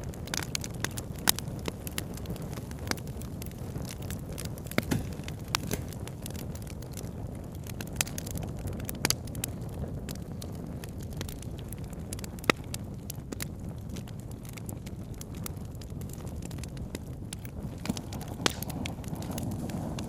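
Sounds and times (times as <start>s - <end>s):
campfire crackling: 0.0s - 20.0s
wood pops: 4.6s - 6.1s, 17.4s - 20.0s.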